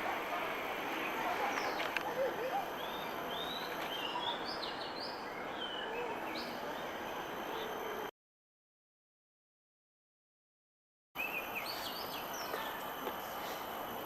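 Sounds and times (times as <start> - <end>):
birds chirping: 0.0 - 8.1.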